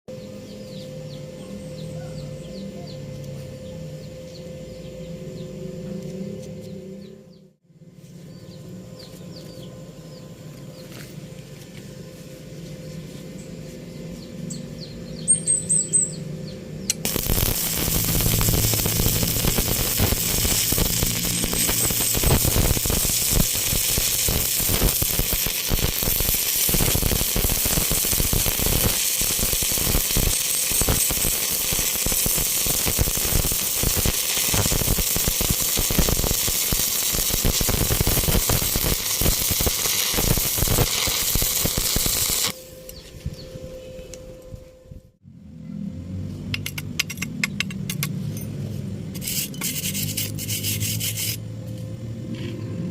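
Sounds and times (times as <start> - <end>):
welding arc crackling: 16.9 - 42.6.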